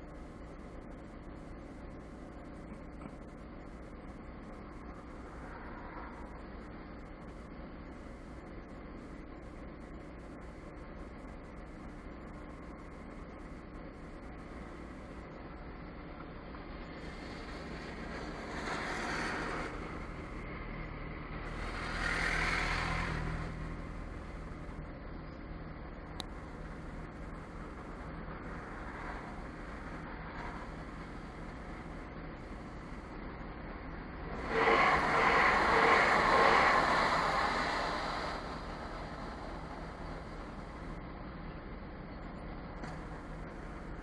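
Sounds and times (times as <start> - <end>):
vehicle engine rumbling: 0.0 - 44.0
passing vehicle noise: 17.0 - 24.9, 26.2 - 41.1
train rolling past: 34.3 - 41.0.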